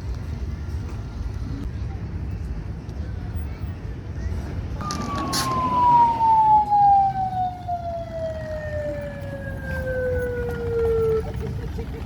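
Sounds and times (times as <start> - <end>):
siren wailing: 4.8 - 11.4.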